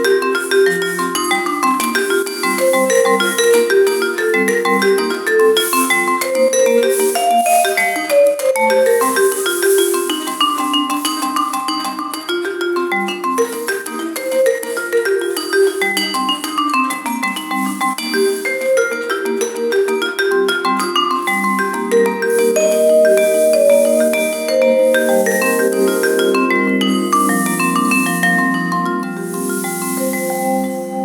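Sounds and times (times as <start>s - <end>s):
cymbal or shaker shimmer: 0.0s - 12.0s, 20.9s - 31.0s
marimba-like mallet music: 0.0s - 31.0s.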